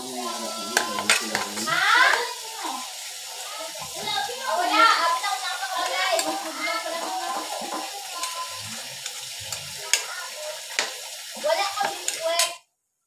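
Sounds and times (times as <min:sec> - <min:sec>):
person speaking: 0:00.0 - 0:02.3
meat sizzling in a wok: 0:00.0 - 0:12.6
metal ladle clicking on pan: 0:00.8 - 0:02.3.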